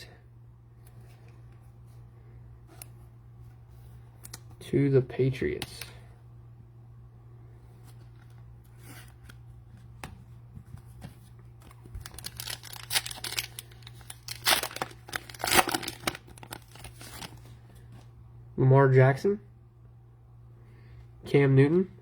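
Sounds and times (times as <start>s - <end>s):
plastic wrapper tearing and crinkling: 11.6s - 17.5s.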